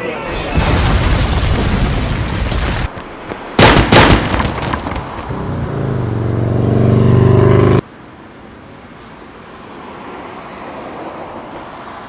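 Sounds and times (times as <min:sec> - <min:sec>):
road noise rumble: 0:00.0 - 0:12.0
vehicle engine revving: 0:04.9 - 0:07.8.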